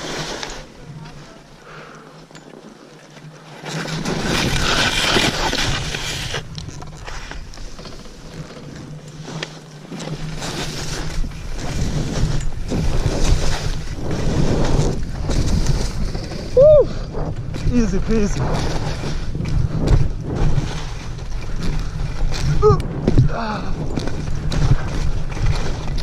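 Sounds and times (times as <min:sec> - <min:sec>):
skis scraping over snow: 0:00.0 - 0:01.9, 0:02.5 - 0:26.0
wind on microphone: 0:10.8 - 0:26.0.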